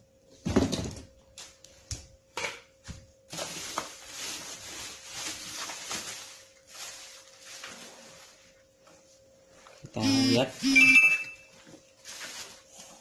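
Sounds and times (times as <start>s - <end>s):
packaging rustling: 3.3s - 8.4s, 11.6s - 13.0s.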